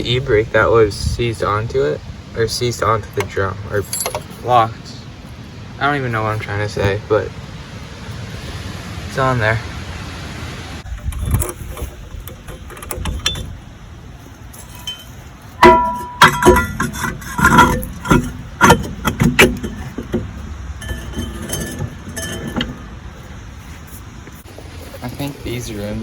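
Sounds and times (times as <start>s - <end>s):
metal tools clinking and clanking: 3.2s - 4.6s, 11.1s - 13.6s, 14.5s - 23.2s.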